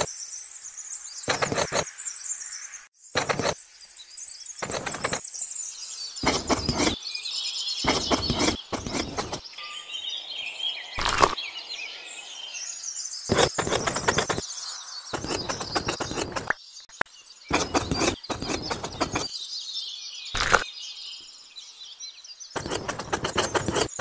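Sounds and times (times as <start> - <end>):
faint birds chirping: 0.0 - 24.0
trowel scraping wet cement: 1.3 - 1.8, 3.2 - 3.6, 4.6 - 5.2, 6.2 - 7.0, 7.8 - 9.4, 13.3 - 14.4, 15.2 - 16.5, 17.5 - 19.3, 22.6 - 24.0.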